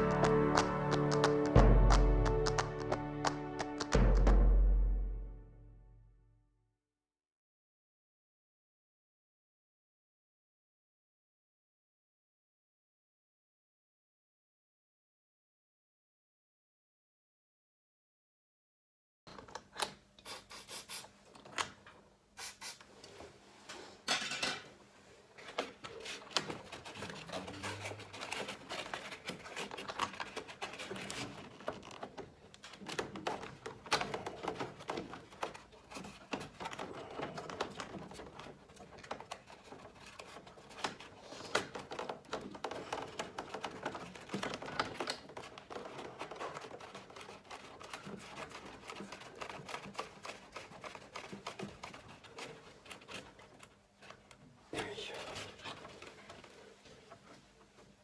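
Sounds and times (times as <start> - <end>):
hands working with tools: 25.4 - 58.0.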